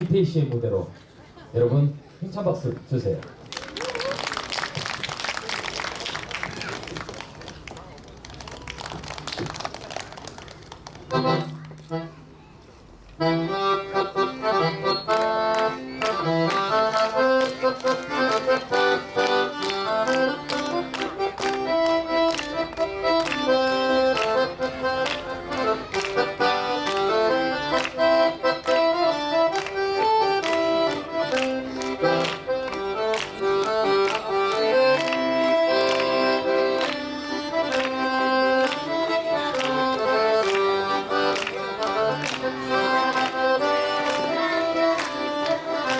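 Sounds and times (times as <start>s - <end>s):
accordion playing: 10.9s - 45.9s.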